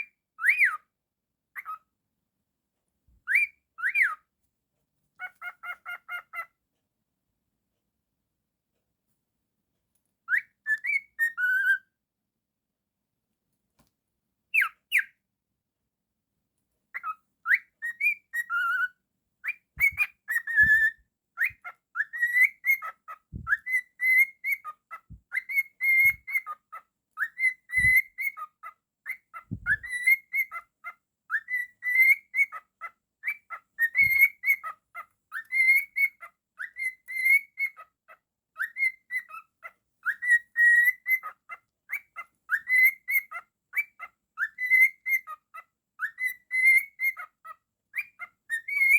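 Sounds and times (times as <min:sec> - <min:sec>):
cockatiel whistling: 0:00.4 - 0:00.8, 0:03.3 - 0:04.2, 0:10.3 - 0:11.8, 0:14.6 - 0:15.1, 0:17.0 - 0:26.6, 0:27.2 - 0:30.7, 0:31.3 - 0:37.9, 0:38.6 - 0:48.9
dull low thumps: 0:29.5 - 0:29.8.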